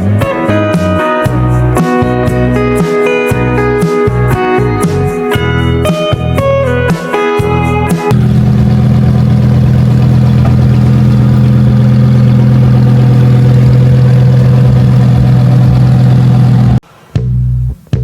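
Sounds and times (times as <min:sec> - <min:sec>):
car engine running steadily: 0:08.1 - 0:16.8.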